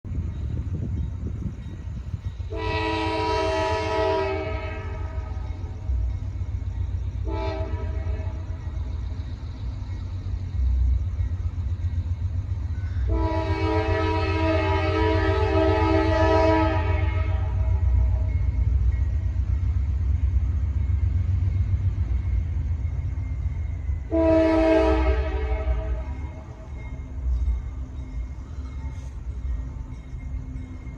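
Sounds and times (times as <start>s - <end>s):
passing train rumble: 0.0s - 30.9s
locomotive air horn: 2.5s - 5.4s, 7.2s - 8.4s, 13.0s - 17.9s, 24.1s - 26.2s.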